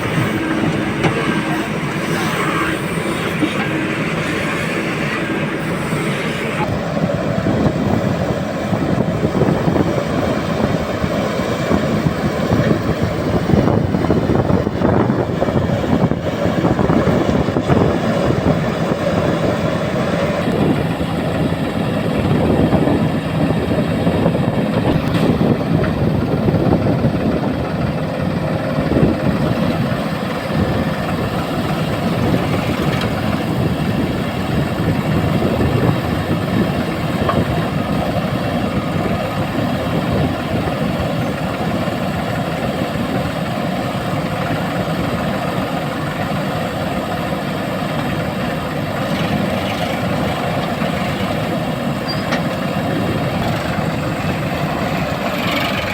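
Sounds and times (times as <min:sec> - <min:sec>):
heavy machinery diesel engine: 0:00.0 - 0:55.9.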